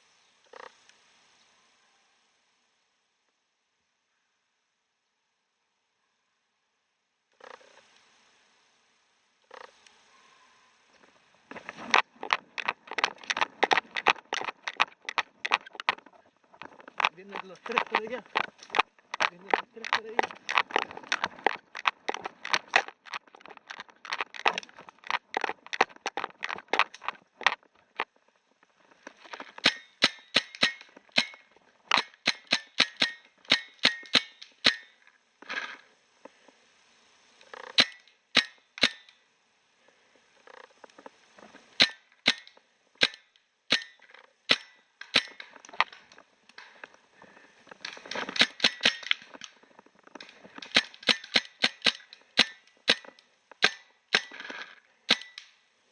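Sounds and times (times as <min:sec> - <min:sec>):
paintball markers firing: 0:16.6 - 0:27.6, 0:29.6 - 0:34.9, 0:50.6 - 0:54.4.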